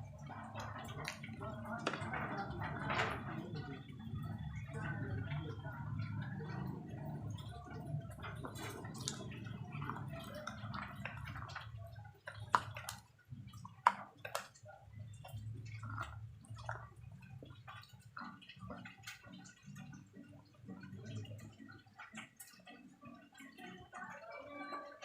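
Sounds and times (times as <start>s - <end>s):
wet chewing mouth sounds: 5.8s - 23.6s.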